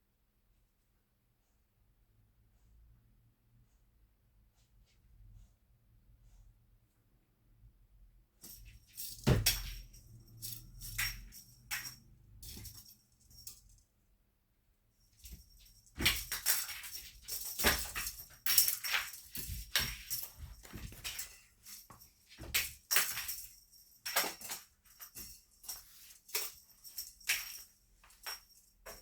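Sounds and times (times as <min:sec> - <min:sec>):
cat toy rattling and jingling: 0:08.4 - 0:13.8, 0:15.0 - 0:29.0.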